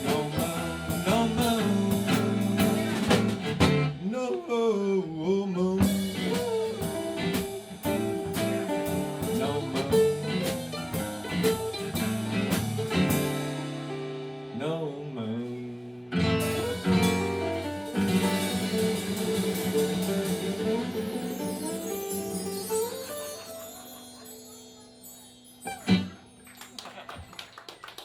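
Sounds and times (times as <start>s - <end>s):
drum kit: 0.0s - 4.4s, 5.8s - 14.5s, 16.1s - 24.4s
electric guitar playing: 5.8s - 14.5s, 16.2s - 24.5s.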